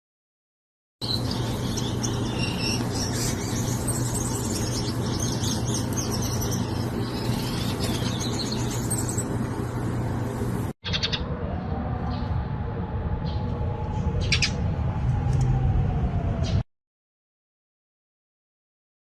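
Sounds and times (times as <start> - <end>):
birds chirping and twittering: 1.0 - 12.4, 13.1 - 14.8
steady low hum: 1.0 - 16.4.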